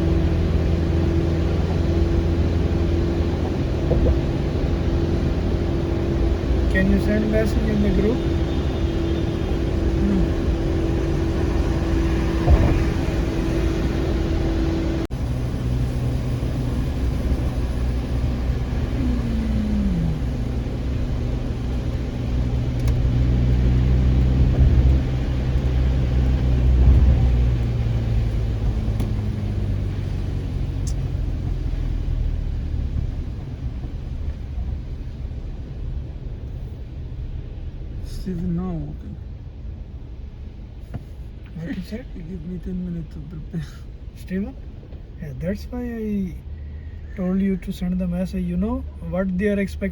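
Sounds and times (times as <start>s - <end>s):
car engine and road rumble: 0.0s - 49.9s
steady hum: 7.3s - 22.9s
falling tone: 18.8s - 20.6s.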